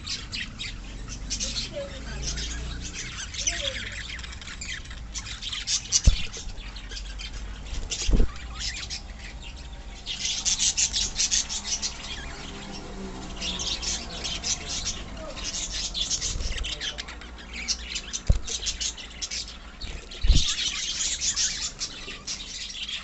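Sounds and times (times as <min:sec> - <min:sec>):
parrots chirping: 0:00.0 - 0:23.0
dull low thumps: 0:06.0 - 0:06.7, 0:19.8 - 0:20.7.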